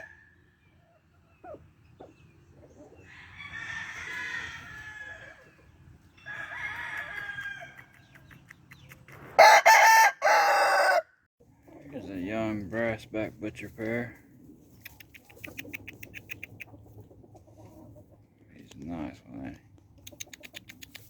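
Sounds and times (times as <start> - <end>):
roosters crowing: 0.0 - 1.7, 2.7 - 8.2, 9.3 - 11.2.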